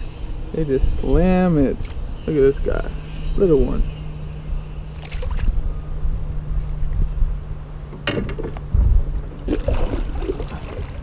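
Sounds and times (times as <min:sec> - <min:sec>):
wind rumble on microphone: 0:00.0 - 0:11.0
water splashing: 0:04.9 - 0:05.6, 0:09.4 - 0:11.0.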